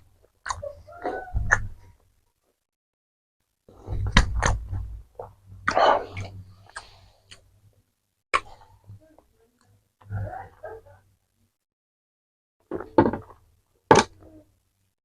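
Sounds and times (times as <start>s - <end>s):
lip-smacking clicks: 0.4s - 0.6s.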